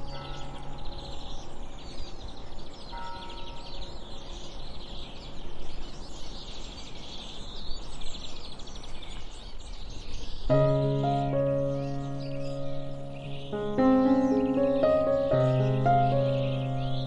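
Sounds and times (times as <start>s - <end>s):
birds chirping and trilling: 0.0s - 17.0s
outdoor hiss: 10.2s - 17.0s
faint held music notes: 10.5s - 17.0s.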